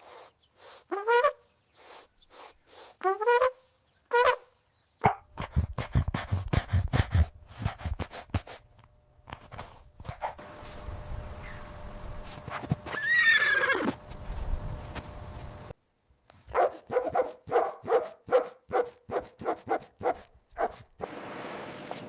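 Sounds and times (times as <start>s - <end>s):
horse calls rising in pitch: 12.8s - 14.0s.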